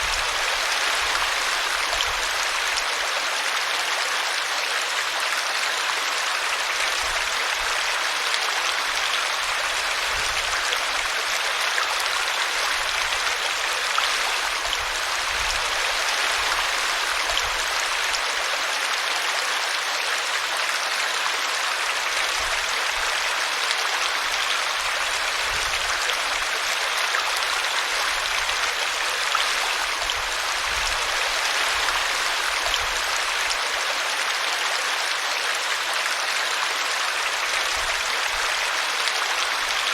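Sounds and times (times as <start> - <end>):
brook flowing over tree root: 0.0 - 39.9.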